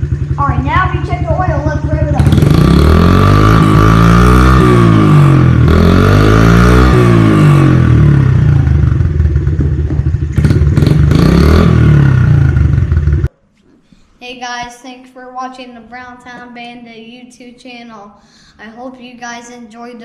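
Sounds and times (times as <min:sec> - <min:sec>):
motorcycle engine revving: 0:00.0 - 0:13.3.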